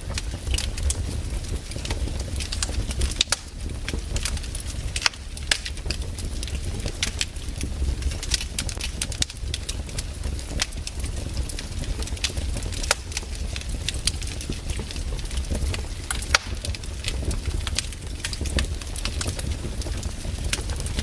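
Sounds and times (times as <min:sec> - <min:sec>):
low rumble of flames: 0:00.0 - 0:21.0
wood crackling and popping: 0:00.0 - 0:21.0.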